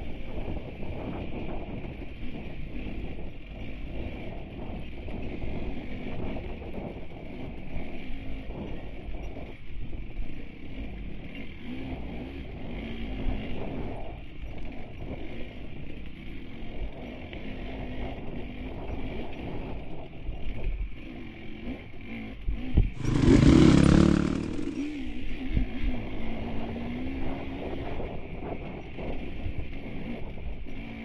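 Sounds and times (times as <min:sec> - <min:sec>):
wind: 0:00.0 - 0:31.0
dirt bike engine revving: 0:23.0 - 0:25.4.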